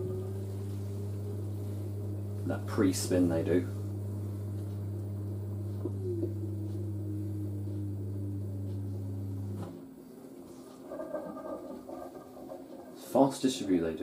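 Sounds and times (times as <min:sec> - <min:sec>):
motor whine gliding in pitch: 0:00.0 - 0:13.8
washer dryer drain pump hum: 0:00.0 - 0:14.0.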